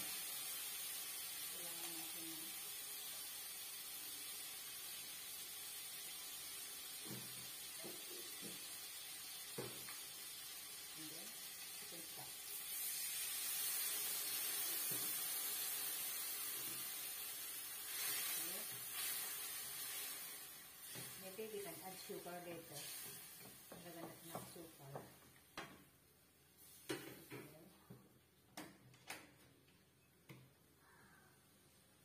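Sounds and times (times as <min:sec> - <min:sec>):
sauce sizzling in a wok: 0:00.0 - 0:25.2.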